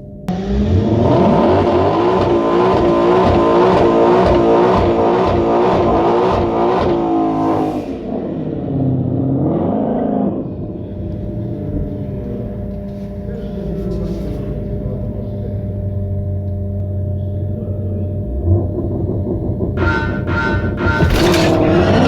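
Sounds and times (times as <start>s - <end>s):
car engine revving hard: 0.3s - 10.7s, 18.2s - 22.0s.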